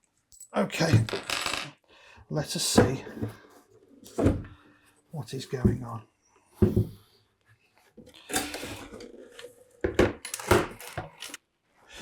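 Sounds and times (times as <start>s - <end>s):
plastic knocks and clatters: 4.1s - 4.6s, 6.6s - 7.0s, 8.0s - 11.4s.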